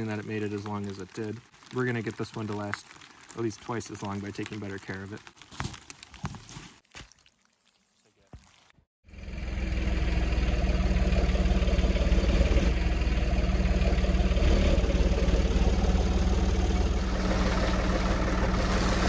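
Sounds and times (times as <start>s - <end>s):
engine idling: 9.1s - 19.0s.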